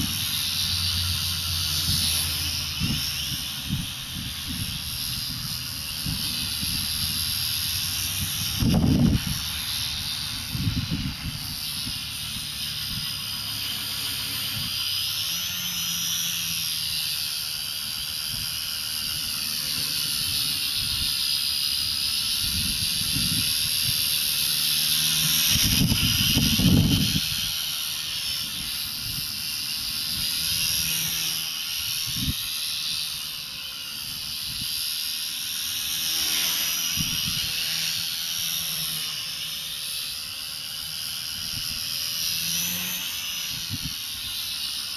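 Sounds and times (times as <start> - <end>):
electric motor whine: 0.0 - 44.9
helicopter rotor noise: 0.0 - 44.9.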